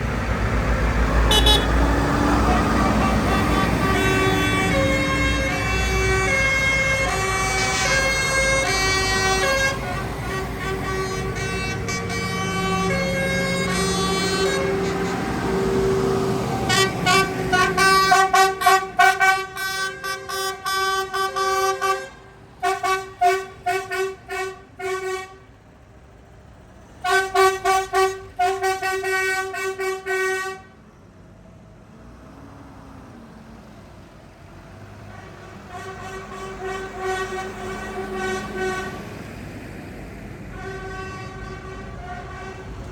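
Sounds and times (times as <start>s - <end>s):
musical vehicle horn tooting: 1.3s - 1.8s, 2.5s - 15.3s, 16.7s - 25.4s, 27.0s - 30.7s, 35.2s - 39.0s, 40.6s - 42.7s.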